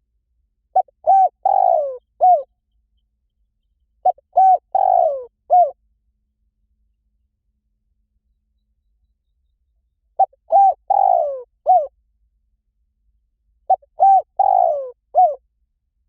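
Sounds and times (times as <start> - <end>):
dove cooing: 0.8 - 2.5, 4.0 - 5.8, 10.2 - 11.9, 13.7 - 15.4.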